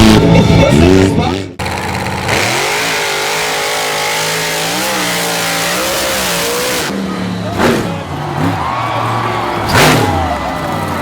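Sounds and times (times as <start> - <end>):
small engine revving: 1.7 - 7.0.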